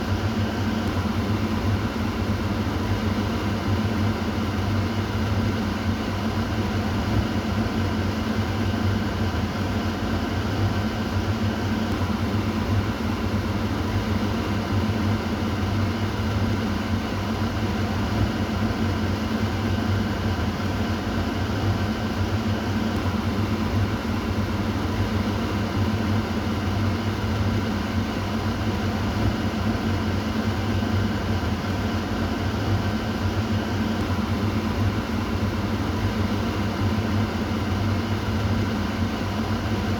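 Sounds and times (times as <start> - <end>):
exhaust fan running: 0.0 - 39.9.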